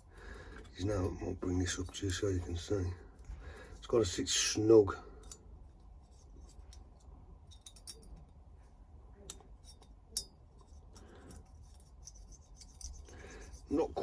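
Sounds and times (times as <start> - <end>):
small metallic clicks: 6.4 - 8.4
feeler gauge blade scraping: 10.6 - 14.0.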